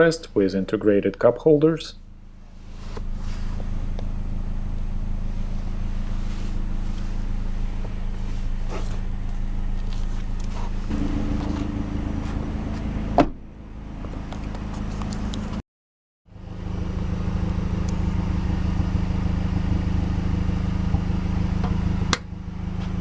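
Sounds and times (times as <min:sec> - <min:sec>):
car engine idling: 0:01.4 - 0:15.6, 0:16.3 - 0:23.0
sharp thump: 0:10.9 - 0:13.4.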